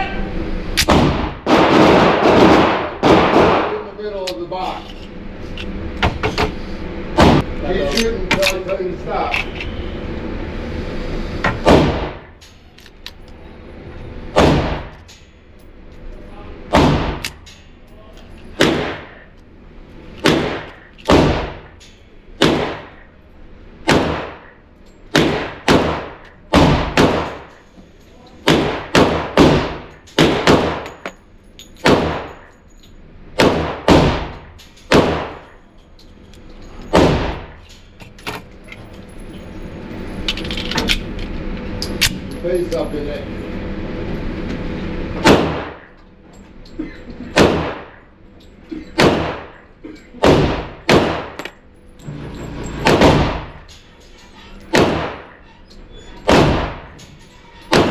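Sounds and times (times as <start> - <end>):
gunshots with echo: 0.9 - 3.9.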